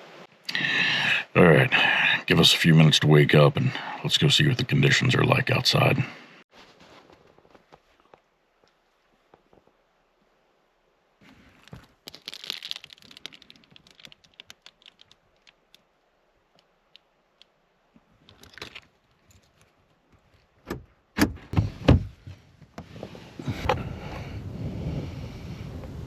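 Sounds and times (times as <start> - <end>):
rustling: 6.5 - 9.8, 11.2 - 23.8.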